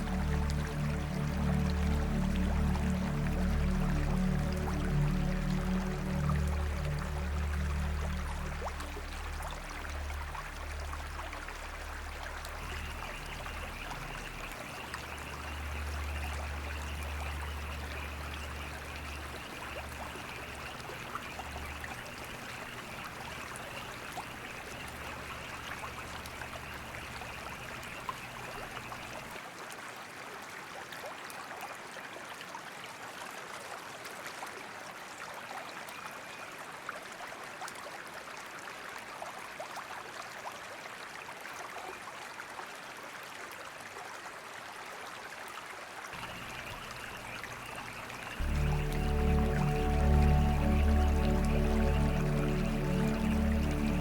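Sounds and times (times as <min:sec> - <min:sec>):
low steady tones: 0:00.0 - 0:29.3, 0:46.2 - 0:54.0
water trickling over rocks: 0:00.0 - 0:54.0.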